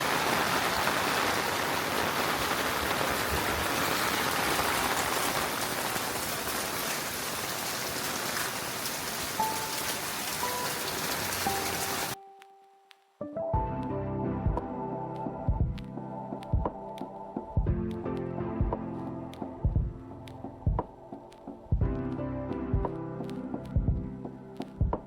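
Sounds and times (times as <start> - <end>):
steady rainfall: 0.0 - 12.2.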